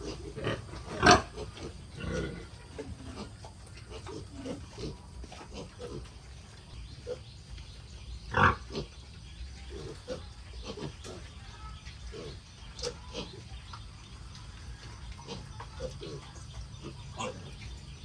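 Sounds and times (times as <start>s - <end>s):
pig squealing: 0.0s - 6.2s
pigs grunting: 0.0s - 7.4s, 8.2s - 13.6s, 15.0s - 18.0s.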